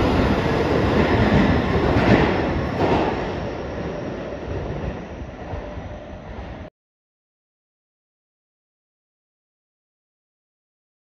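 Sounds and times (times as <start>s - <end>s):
train rumble: 0.0s - 6.7s.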